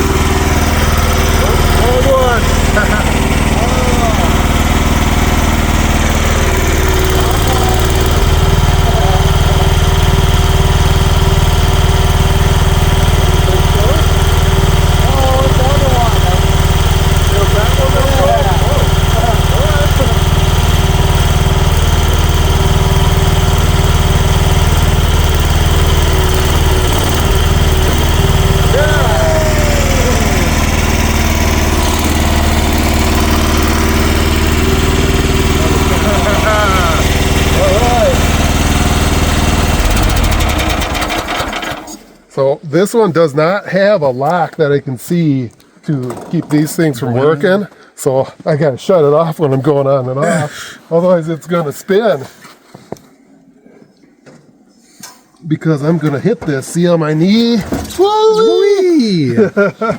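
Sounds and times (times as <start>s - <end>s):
mini excavator engine running: 0.0s - 42.3s.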